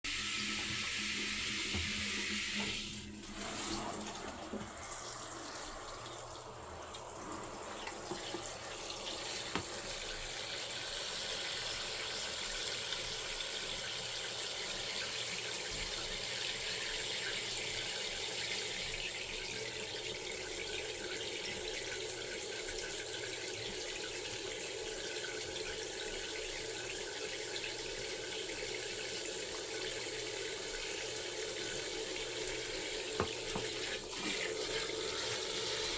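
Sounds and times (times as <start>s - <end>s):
tap water splashing into basin: 0.4s - 10.4s, 32.2s - 35.9s.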